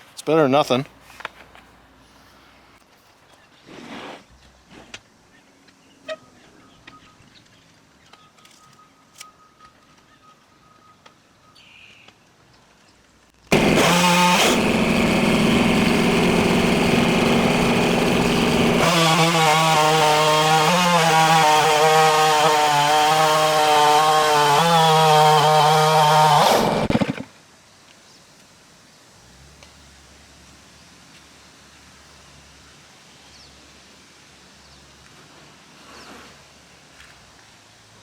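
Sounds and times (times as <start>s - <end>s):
chainsaw ripping a log: 13.5s - 27.3s.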